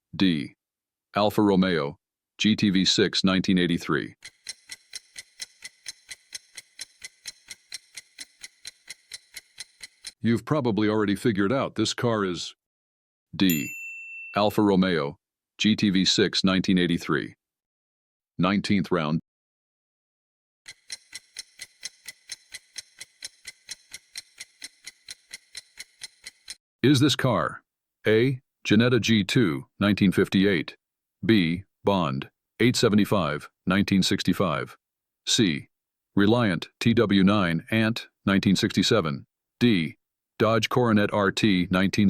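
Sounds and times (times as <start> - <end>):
clock ticking: 4.2 - 10.2, 20.7 - 26.6.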